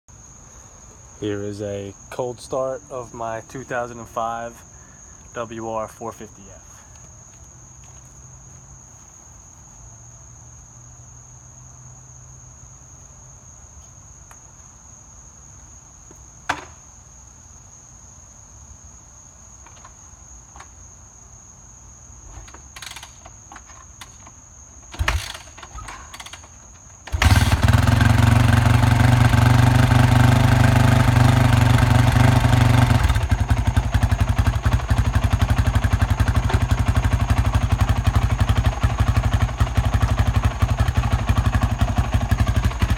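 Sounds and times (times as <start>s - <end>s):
crickets chirping: 0.1s - 42.9s
engine clicks and clatters: 24.9s - 42.9s
motorcycle engine running: 27.1s - 42.9s.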